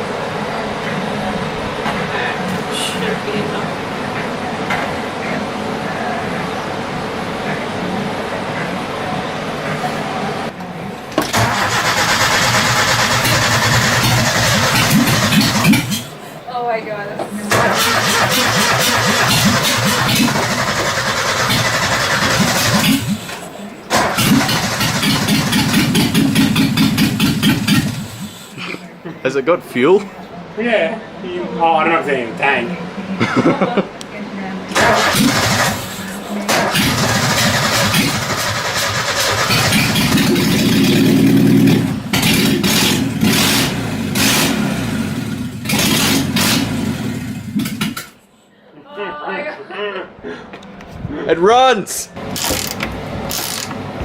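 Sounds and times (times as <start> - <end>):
starter cranking engine: 11.2 - 16.2, 17.5 - 28.6, 34.8 - 48.2, 52.4 - 53.7.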